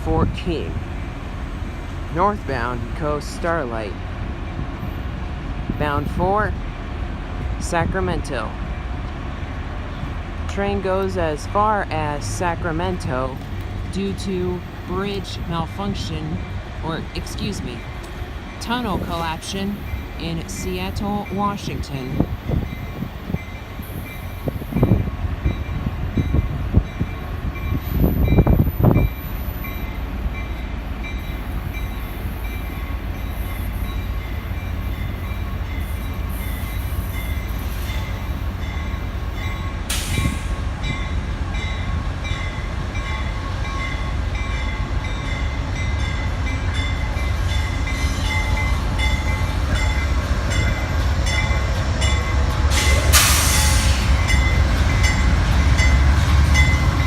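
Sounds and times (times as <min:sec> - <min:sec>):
diesel locomotive rumble: 0:00.0 - 0:57.0
locomotive bell ringing: 0:14.1 - 0:39.8, 0:40.8 - 0:57.0
short hissing blasts: 0:52.7 - 0:54.2.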